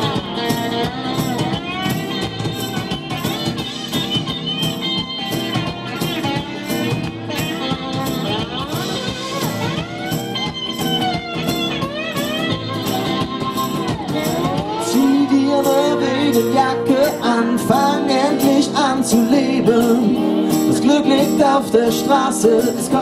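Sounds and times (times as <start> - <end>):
steady drum beat: 0.0 - 19.2
lead guitar with bending notes: 0.0 - 23.0.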